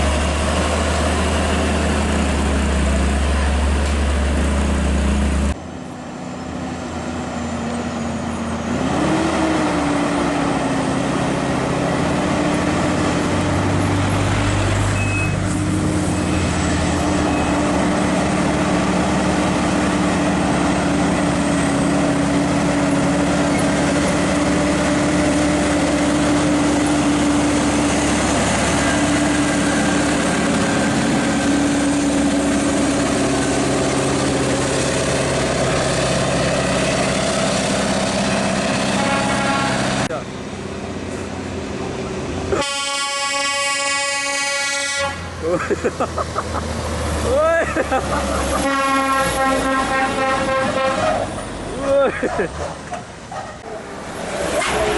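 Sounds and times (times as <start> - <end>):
diesel engine note rising: 0.0 - 43.2
deep diesel engine running: 9.4 - 44.5.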